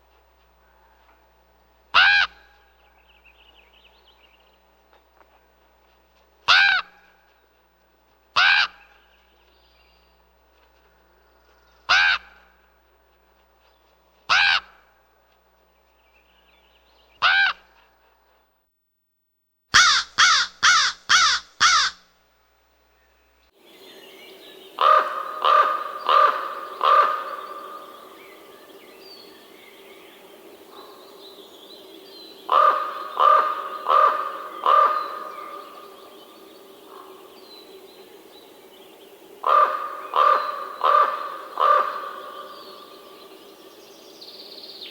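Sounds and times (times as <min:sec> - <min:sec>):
ravens calling: 0:01.9 - 0:02.7, 0:11.8 - 0:12.5, 0:19.8 - 0:22.0, 0:24.6 - 0:44.1
steady background noise: 0:19.8 - 0:44.9.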